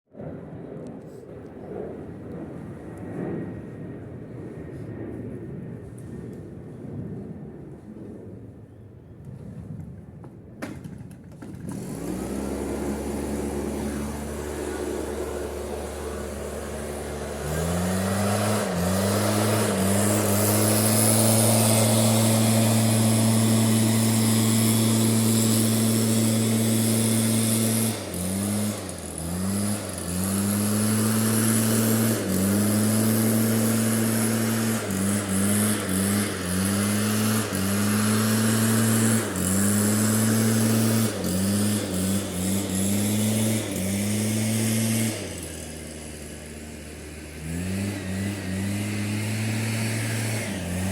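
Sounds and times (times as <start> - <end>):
pressure washer motor whining: 11.6 - 50.9.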